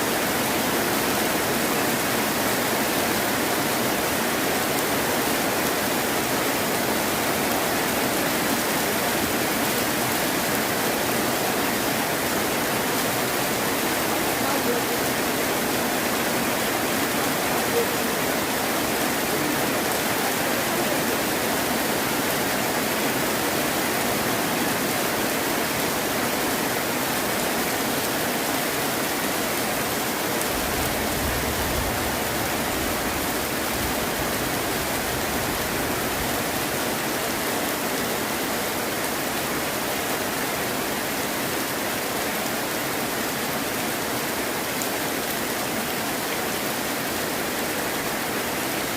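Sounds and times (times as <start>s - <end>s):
heavy rain: 0.0s - 48.9s.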